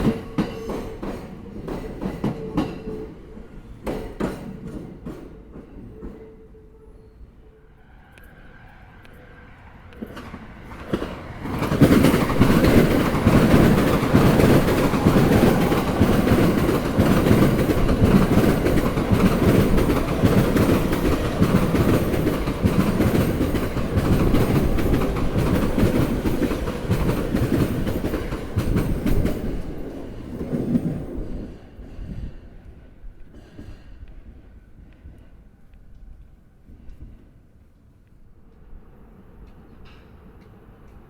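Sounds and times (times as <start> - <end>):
train wheels clattering over rail joints: 10.1 - 31.1.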